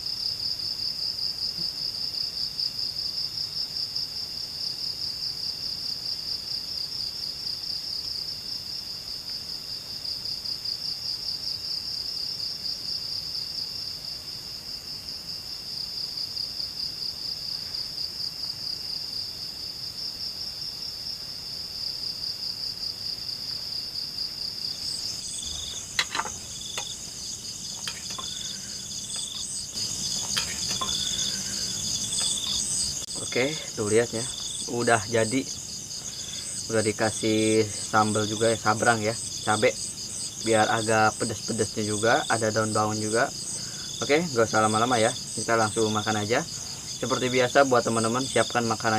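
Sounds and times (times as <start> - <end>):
crickets trilling: 0.0 - 48.9
higher insect chirps: 0.0 - 48.9
short knocks: 25.4 - 27.0.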